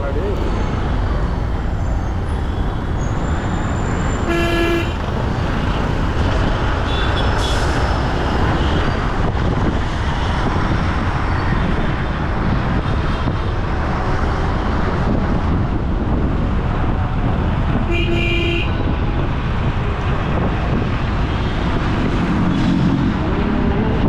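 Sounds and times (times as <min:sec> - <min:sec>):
city traffic noise: 0:00.0 - 0:24.0
higher horn toot: 0:04.1 - 0:05.1
vehicle horn honking: 0:04.1 - 0:05.1, 0:17.9 - 0:18.8.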